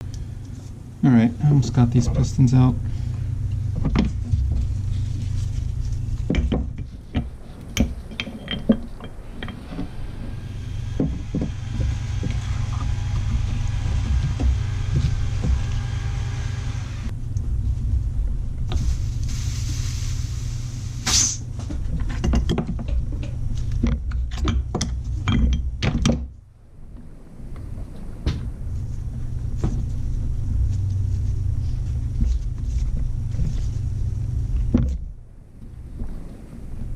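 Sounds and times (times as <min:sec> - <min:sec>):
steady low hum: 0:00.0 - 0:36.9
metal clicks and knocks: 0:06.2 - 0:10.0, 0:21.7 - 0:26.4
hiss: 0:18.7 - 0:21.5.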